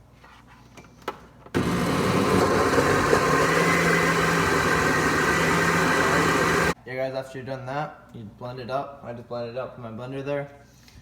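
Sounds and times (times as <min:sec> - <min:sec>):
blender motor humming: 0:01.6 - 0:06.8.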